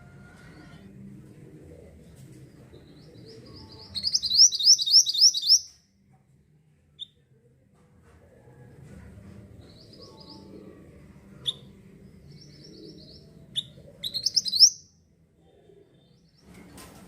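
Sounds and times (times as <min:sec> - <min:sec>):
bird singing trills: 0:03.6 - 0:05.7, 0:12.4 - 0:14.9.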